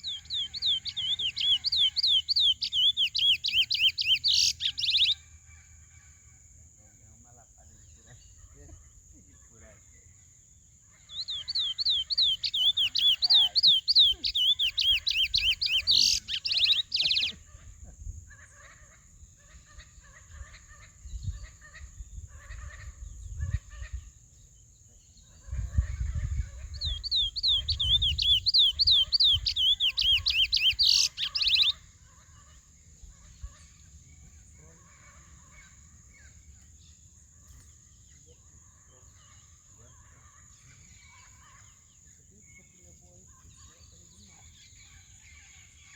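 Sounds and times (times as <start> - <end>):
finch singing whistled notes: 0.0 - 5.2, 11.1 - 17.4, 26.6 - 31.8
faint bird chirps: 0.0 - 5.9, 6.7 - 18.6, 19.4 - 45.9.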